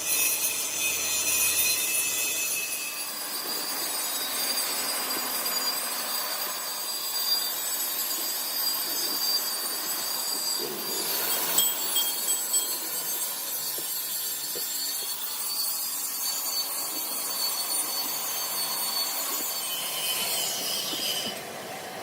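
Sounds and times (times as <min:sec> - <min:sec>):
high squealing tones: 0:00.0 - 0:21.5
tool scraping tyre rubber: 0:08.1 - 0:21.6.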